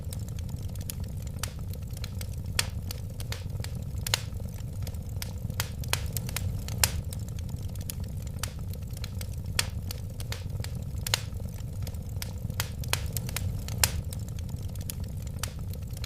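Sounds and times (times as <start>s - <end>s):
low rumble of flames: 0.0s - 16.0s
wood fire crackling and popping: 0.0s - 16.0s.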